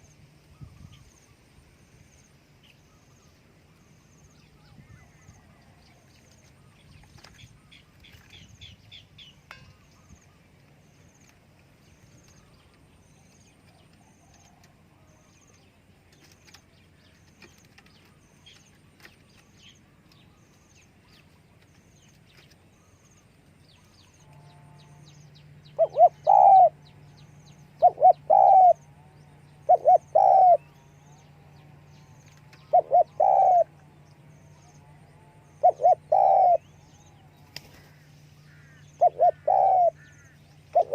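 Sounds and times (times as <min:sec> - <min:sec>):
dove cooing: 0:25.7 - 0:26.8, 0:27.7 - 0:33.9, 0:34.5 - 0:40.9.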